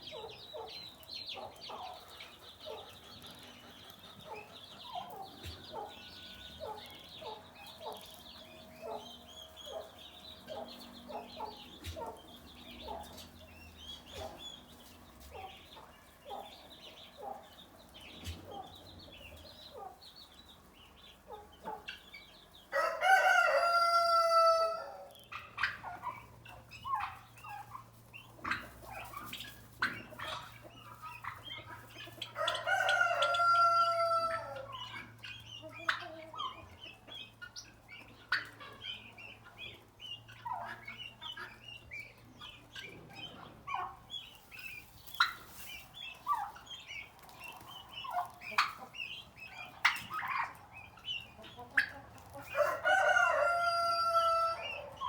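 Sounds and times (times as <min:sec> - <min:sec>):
chickens clucking softly: 0:00.0 - 0:55.0
rooster crowing: 0:22.7 - 0:25.1, 0:32.4 - 0:34.7, 0:52.5 - 0:55.0.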